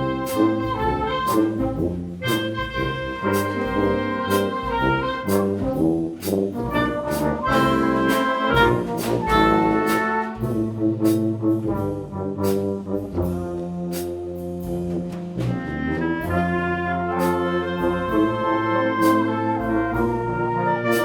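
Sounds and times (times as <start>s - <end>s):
percussion hits: 0.0s - 11.8s, 13.1s - 16.6s
trombones and trumpets: 0.0s - 21.0s.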